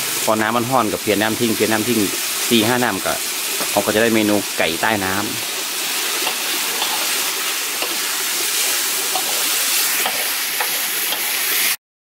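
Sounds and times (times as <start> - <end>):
meat sizzling in a wok: 0.0 - 11.8
metal spatula scraping pan: 6.2 - 7.2, 7.8 - 11.4.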